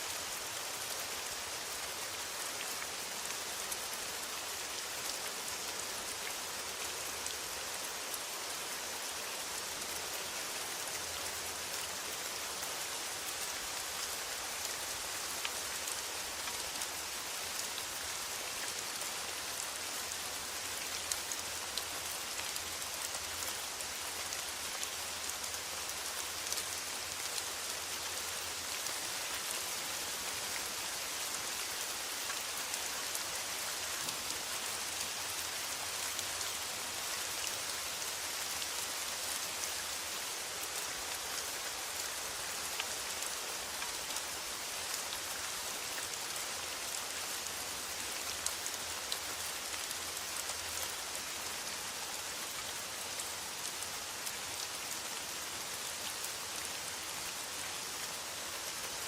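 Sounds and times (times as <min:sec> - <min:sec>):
rain on a metal roof: 0:00.0 - 0:59.0.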